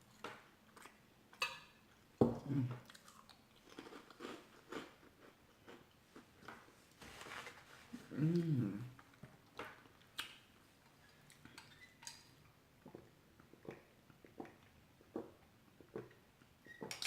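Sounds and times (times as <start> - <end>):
person chewing food: 0.1 - 6.7, 8.1 - 16.3
short vocal sound: 8.0 - 9.0.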